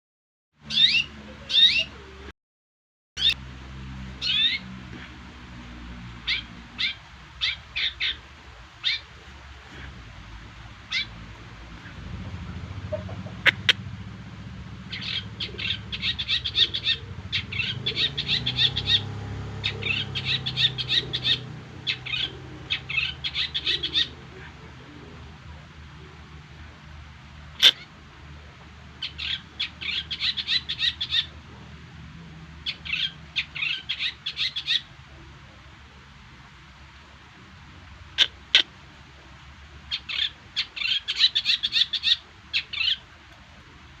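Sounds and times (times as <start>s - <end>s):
bird chirping song: 0.6s - 2.3s, 4.2s - 4.7s, 6.2s - 8.2s, 8.8s - 9.9s, 10.9s - 13.8s, 14.8s - 25.3s, 29.0s - 31.4s, 32.6s - 34.9s, 39.9s - 43.0s
low hum: 8.3s - 27.3s.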